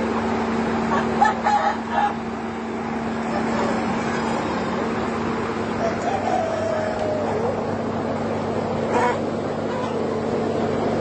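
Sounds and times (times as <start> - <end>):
steady motor hum: 0.0 - 11.0
chicken calling: 0.9 - 2.2, 5.7 - 7.9, 8.8 - 10.4.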